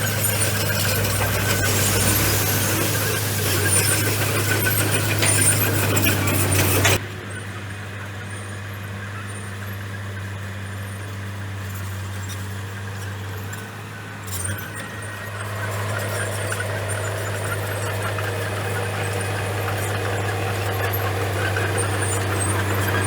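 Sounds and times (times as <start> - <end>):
loud rattling and clanking: 0.0 - 7.0, 15.0 - 23.0
bulldozer diesel engine running: 0.0 - 23.0.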